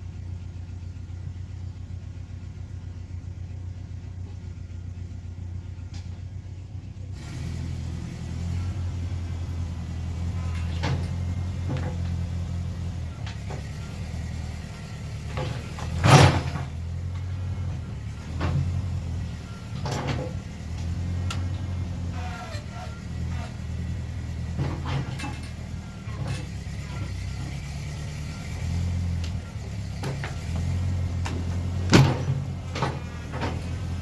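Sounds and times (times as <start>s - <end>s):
tractor engine running: 0.0s - 34.0s
sharp knocks and clanks: 10.0s - 14.3s, 15.2s - 34.0s.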